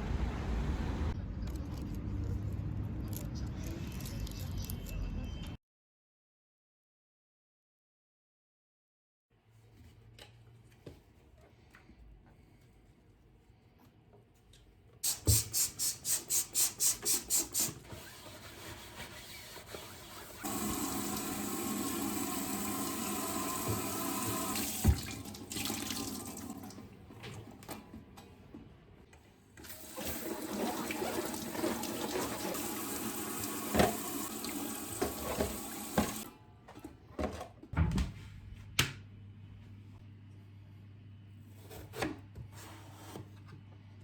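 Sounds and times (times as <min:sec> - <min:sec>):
tap water running into sink: 0:20.4 - 0:26.9, 0:29.6 - 0:36.3.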